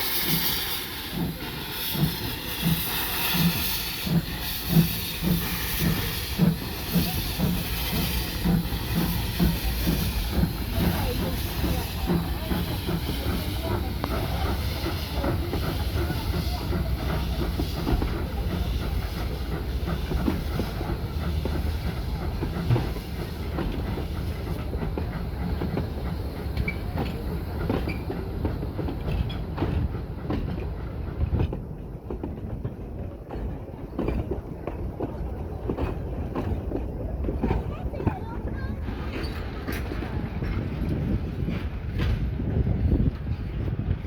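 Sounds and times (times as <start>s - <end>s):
steam hiss: 0.0s - 31.4s
steam train rumbling: 0.0s - 44.0s
wheels clacking over rail joints: 4.8s - 44.0s.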